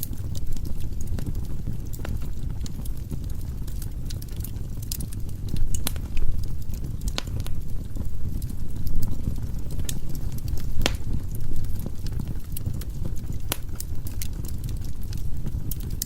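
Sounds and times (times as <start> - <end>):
fire rumbling: 0.0 - 16.0
firewood crackling and popping: 0.0 - 16.0.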